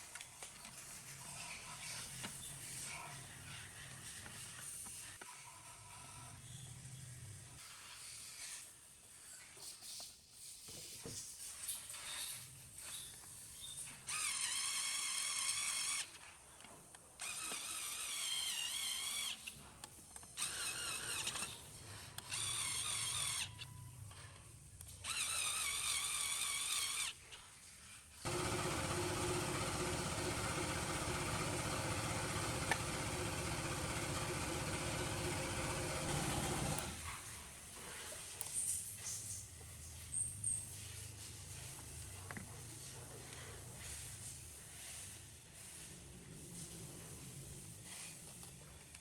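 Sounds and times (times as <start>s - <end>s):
small power tool whining: 17.2s - 19.5s, 25.0s - 27.2s, 28.2s - 37.2s.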